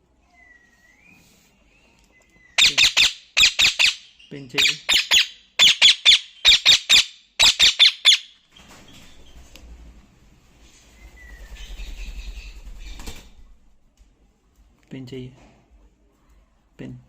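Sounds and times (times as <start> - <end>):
parrot squawking: 2.5 - 8.4.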